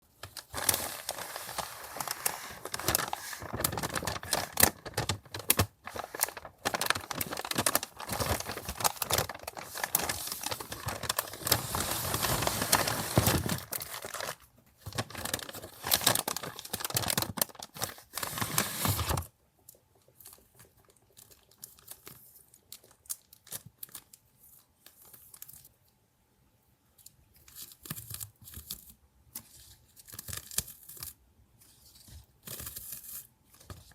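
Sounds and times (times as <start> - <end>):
paper and packaging crinkling: 0.0 - 19.3, 20.2 - 25.7.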